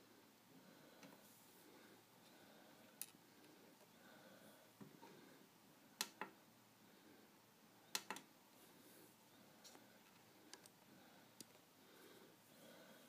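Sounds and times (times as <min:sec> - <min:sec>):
sharp clicks: 0:07.9 - 0:08.3.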